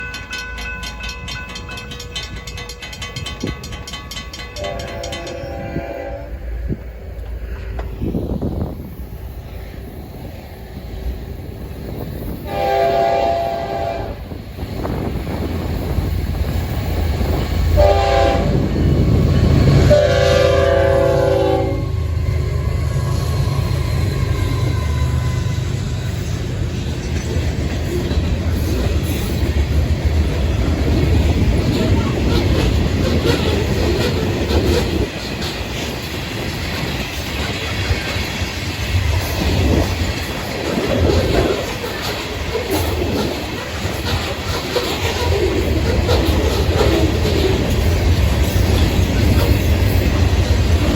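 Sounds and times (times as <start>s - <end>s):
wheels clicking over rail joints: 0.0s - 5.8s, 26.0s - 50.9s
diesel locomotives rumbling past: 0.0s - 50.9s
locomotive air horn: 4.6s - 6.4s, 12.5s - 14.2s, 17.8s - 18.6s, 19.8s - 22.2s.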